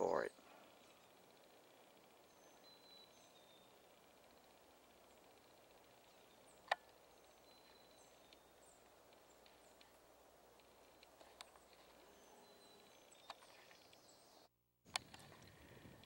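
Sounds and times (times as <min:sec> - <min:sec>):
distant bird chirps: 0:00.0 - 0:16.0
sharp clicks: 0:06.6 - 0:07.0, 0:10.6 - 0:11.8, 0:14.9 - 0:15.6.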